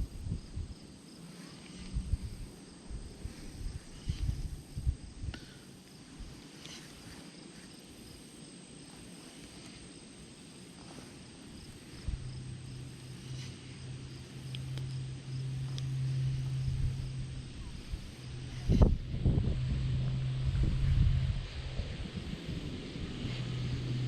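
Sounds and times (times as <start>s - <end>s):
insects chirping: 0.0s - 24.0s
low engine drone: 0.0s - 24.0s
low bumps: 10.8s - 24.0s.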